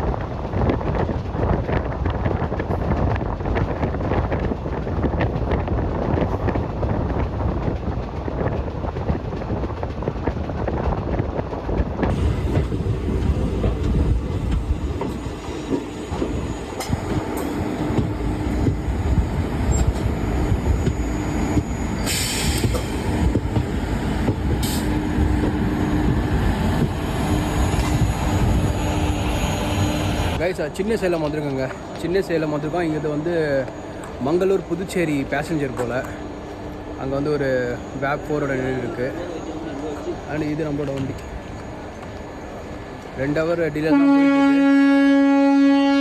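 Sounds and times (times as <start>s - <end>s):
train wheels rumbling: 0.0s - 46.0s.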